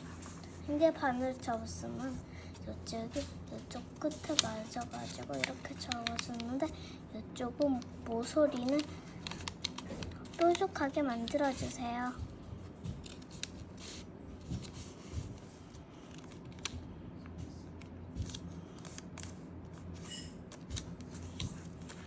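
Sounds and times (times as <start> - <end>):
paper creasing: 0.0 - 6.8, 7.8 - 16.8
paper rustling: 0.0 - 6.9, 7.7 - 16.8, 18.2 - 19.9.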